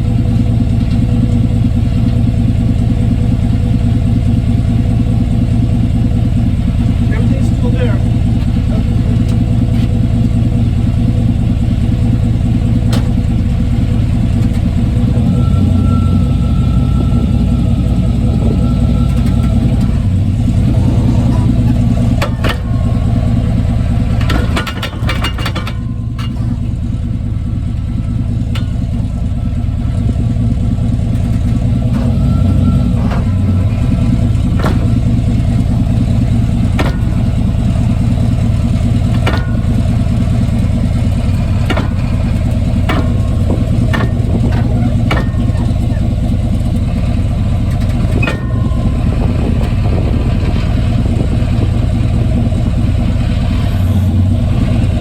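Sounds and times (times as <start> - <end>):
truck engine drone: 0.0 - 55.0
drivetrain knocks: 16.7 - 26.7, 32.9 - 53.1.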